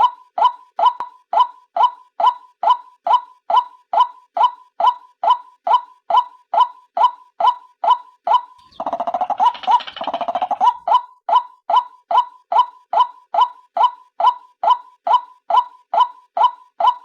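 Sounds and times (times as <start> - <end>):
laugh-like bird chattering: 6.1 - 11.4.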